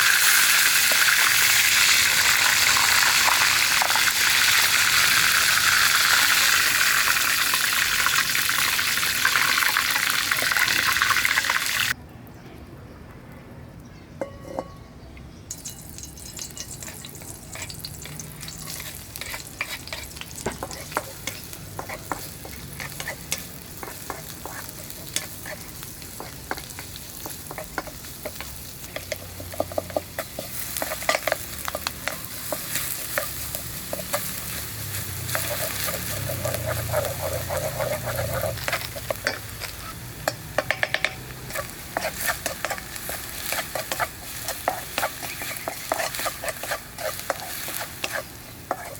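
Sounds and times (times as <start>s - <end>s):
fish sizzling in hot oil: 0.0s - 12.0s, 15.5s - 48.9s
utensil stirring in pan: 15.6s - 48.9s.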